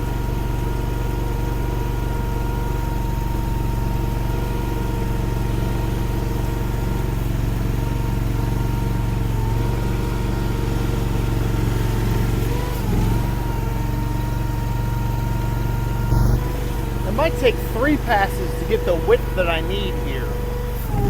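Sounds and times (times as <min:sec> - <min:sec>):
skid steer engine running: 0:00.0 - 0:21.0
high whine: 0:15.9 - 0:20.5.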